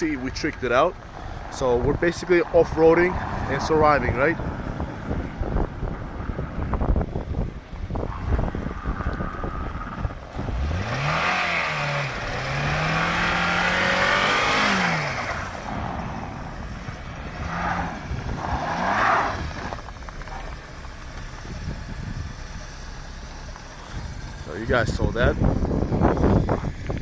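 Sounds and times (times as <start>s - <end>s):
car engine revving: 0.0s - 27.0s
wind buffeting microphone: 0.2s - 27.0s.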